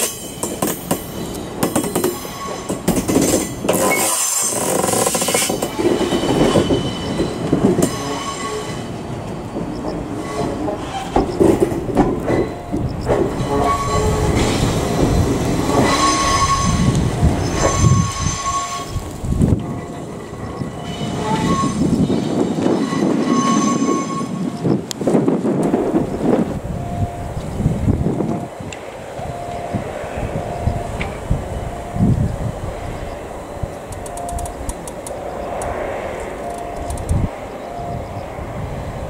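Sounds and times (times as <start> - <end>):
high wheel squeals: 0.0 - 9.0, 9.8 - 11.5, 12.4 - 19.2, 19.8 - 24.8
wheels clacking over rail joints: 0.0 - 26.6, 27.2 - 38.3
train rumbling over tracks: 0.0 - 39.0.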